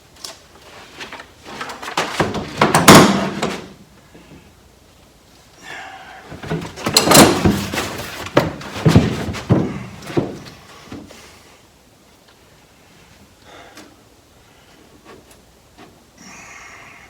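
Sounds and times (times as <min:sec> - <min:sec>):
foil sheets rustling: 0:00.2 - 0:03.8, 0:06.4 - 0:10.5.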